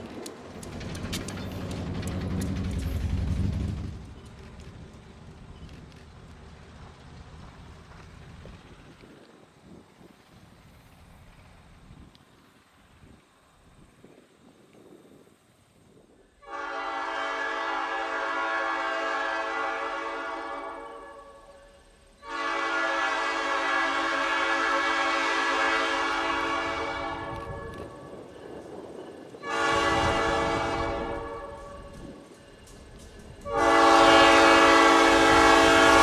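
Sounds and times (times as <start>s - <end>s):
locomotive rumble: 0.0s - 36.0s
locomotive air horn blasts: 16.4s - 21.5s, 22.2s - 27.9s, 29.4s - 31.8s, 33.4s - 36.0s.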